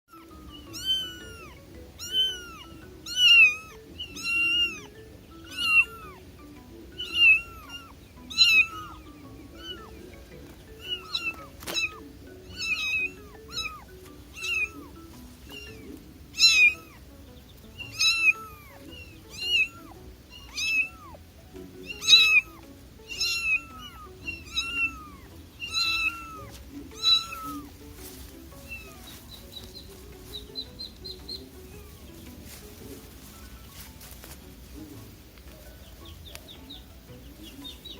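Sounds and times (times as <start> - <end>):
kitten meowing: 0.1 - 6.3, 7.0 - 10.0, 10.8 - 17.1, 17.8 - 21.2, 21.8 - 27.8, 28.6 - 29.1
faint background music: 0.1 - 37.9.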